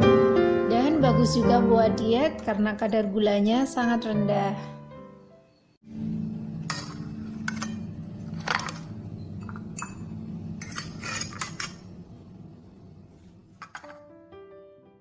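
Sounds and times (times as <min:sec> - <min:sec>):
dishes clinking: 0:06.6 - 0:11.9.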